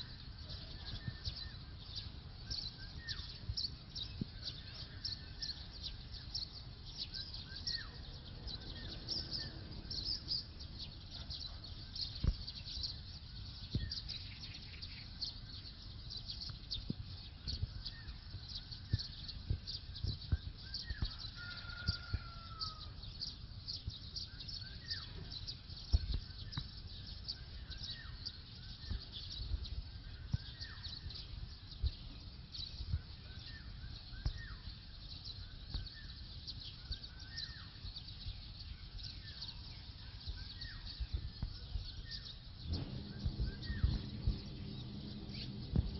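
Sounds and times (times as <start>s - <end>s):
small birds chirping: 0.0s - 45.9s
low rumble: 41.1s - 45.9s.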